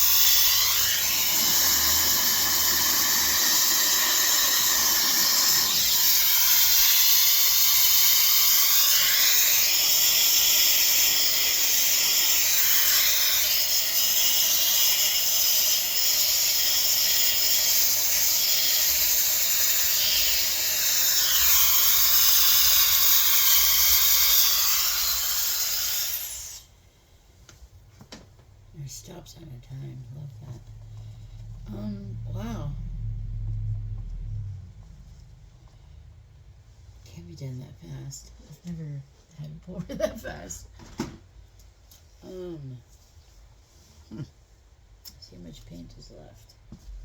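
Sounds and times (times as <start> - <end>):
paint spinner whirring: 0.0 - 26.8.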